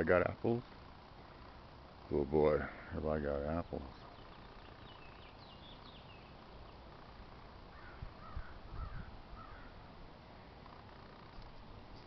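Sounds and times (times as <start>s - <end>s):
birds chirping: 0.0s - 12.0s
harsh bird calls: 2.6s - 7.0s, 7.6s - 9.9s
wind bumps on microphone: 8.0s - 9.2s.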